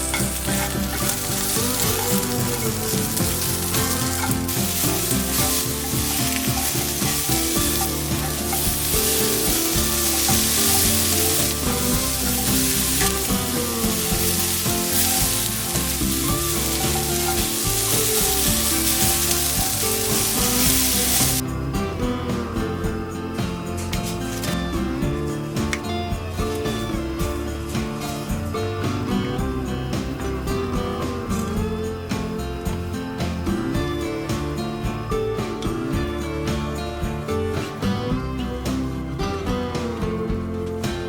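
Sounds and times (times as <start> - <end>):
food sizzling in a hot pan: 0.0 - 21.5.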